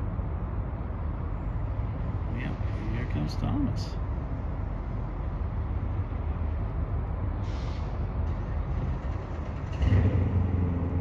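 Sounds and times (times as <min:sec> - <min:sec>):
distant diesel train rumble: 0:04.1 - 0:11.0
short hiss: 0:07.4 - 0:08.0.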